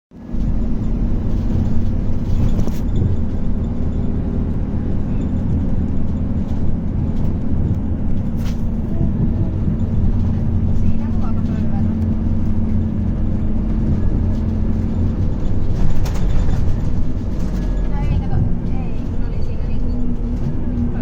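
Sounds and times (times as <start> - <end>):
bus engine droning: 0.1 - 21.0.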